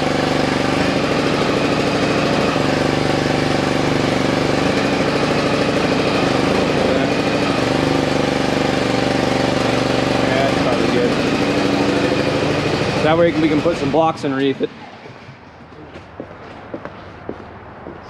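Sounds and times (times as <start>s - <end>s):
truck engine idling: 0.0s - 16.2s.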